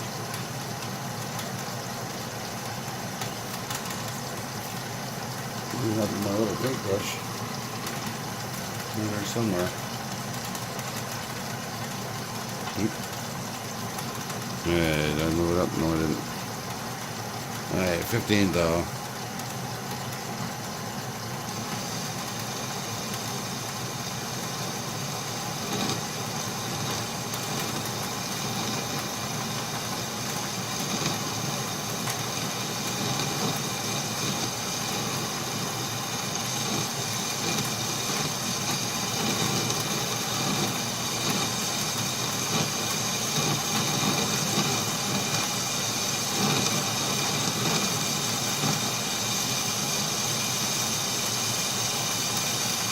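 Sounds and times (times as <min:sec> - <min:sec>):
lathe motor humming: 0:21.5 - 0:52.9.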